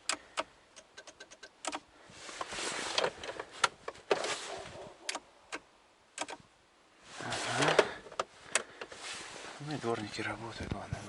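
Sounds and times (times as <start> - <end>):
steering-column switch clicks: 0.0 - 1.9, 5.0 - 6.4.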